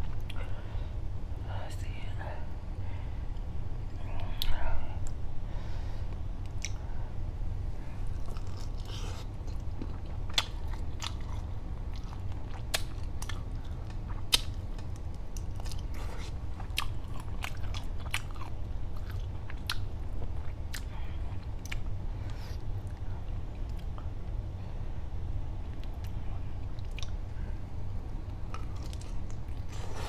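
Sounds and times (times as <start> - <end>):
steady low hum: 0.0 - 30.0
chewing with wet mouth clicks: 6.4 - 6.8, 8.1 - 24.1, 25.6 - 27.2, 28.3 - 29.8.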